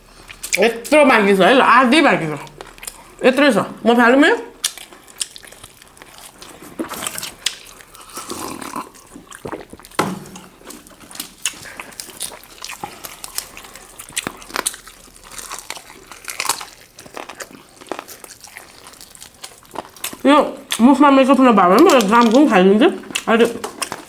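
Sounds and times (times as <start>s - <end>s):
people chewing chicken: 0.0s - 3.4s, 4.4s - 24.0s.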